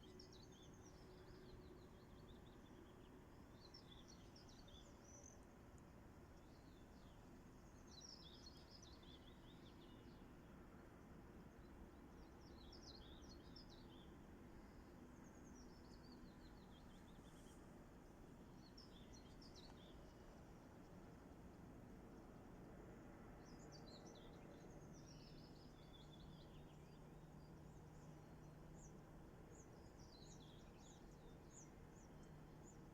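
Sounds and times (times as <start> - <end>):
songbird singing: 0.0 - 5.5, 6.4 - 10.3, 11.4 - 21.2, 23.0 - 32.9.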